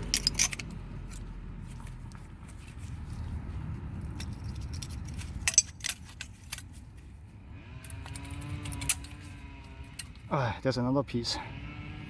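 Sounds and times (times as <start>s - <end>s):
small metal parts clinking: 0.0s - 1.9s, 4.0s - 7.1s, 7.8s - 10.3s.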